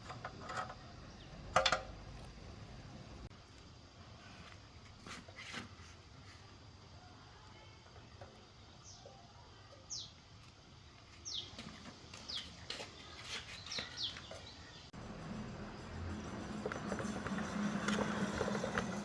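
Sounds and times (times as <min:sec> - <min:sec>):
small birds chirping: 0:00.8 - 0:03.3, 0:08.0 - 0:10.3, 0:11.1 - 0:15.0.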